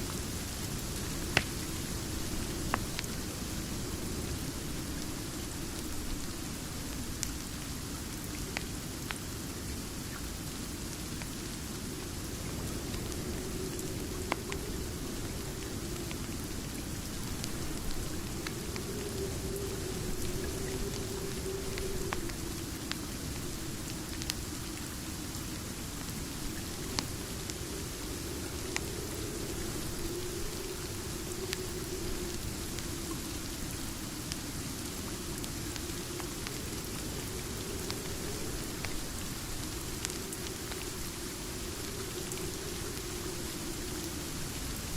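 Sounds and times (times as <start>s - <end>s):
steady rain hiss: 0.0s - 44.9s
faint sharp ticks: 0.1s - 3.6s, 12.4s - 24.8s, 25.4s - 44.8s.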